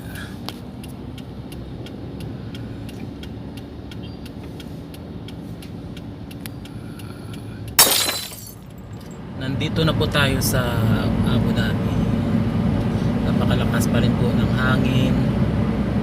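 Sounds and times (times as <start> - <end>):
light ticking: 0.4 - 7.8.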